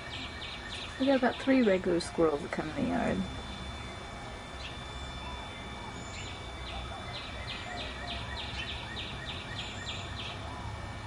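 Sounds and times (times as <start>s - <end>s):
songbird whistling: 4.6s - 10.4s.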